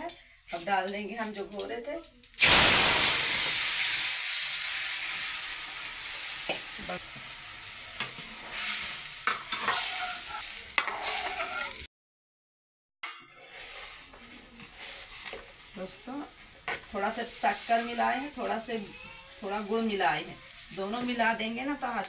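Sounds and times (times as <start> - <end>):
liquid hissing in hot oil: 2.4 - 11.8.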